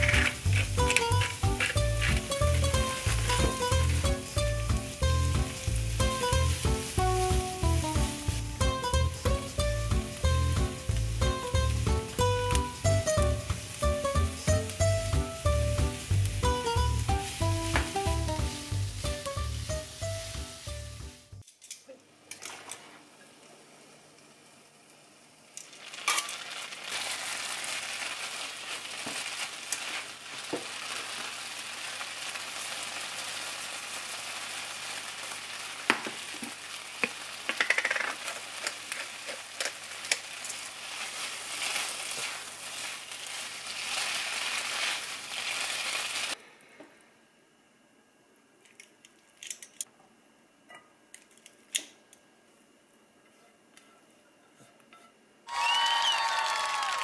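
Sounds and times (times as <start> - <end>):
food sizzling in a frying pan: 0.0 - 21.4, 25.6 - 46.4.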